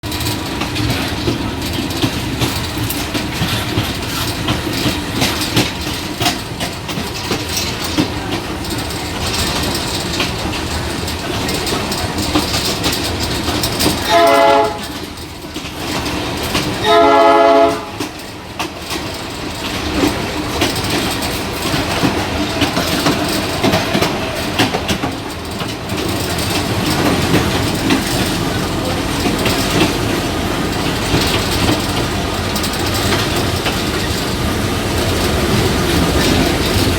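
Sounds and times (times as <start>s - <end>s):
train rumbling on rails: 0.0s - 36.9s
wheels clicking over track: 0.0s - 36.9s
train horn blasts: 14.0s - 15.0s, 16.8s - 18.2s.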